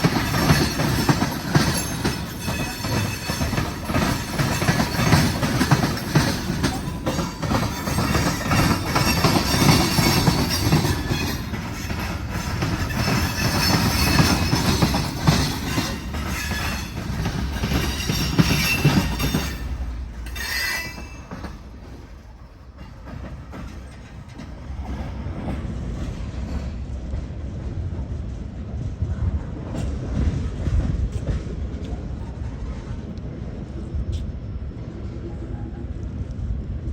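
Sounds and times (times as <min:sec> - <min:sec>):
train wheels clicking and squealing: 0:00.0 - 0:27.4
freight train rolling past: 0:00.0 - 0:36.9.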